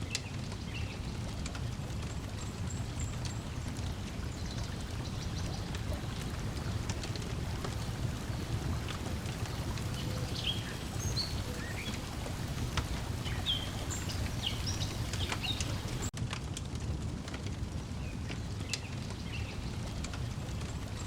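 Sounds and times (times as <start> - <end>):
water lapping: 0.0 - 16.1
steady low rumble: 0.0 - 21.0
wood fire crackling: 0.0 - 21.0.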